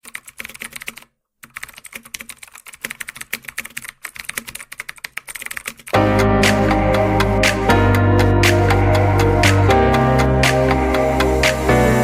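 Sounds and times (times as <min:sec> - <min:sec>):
keyboard typing: 0:00.0 - 0:10.8
music: 0:06.0 - 0:12.0.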